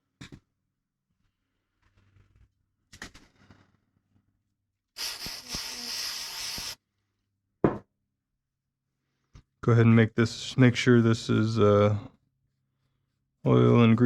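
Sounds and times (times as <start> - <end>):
aerosol spray hiss: 5.0 - 6.8.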